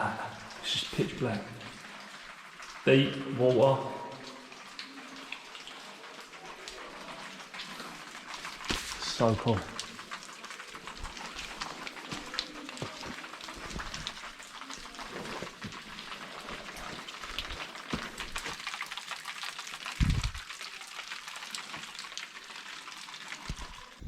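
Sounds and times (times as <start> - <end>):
water dripping and pattering: 0.0 - 24.0.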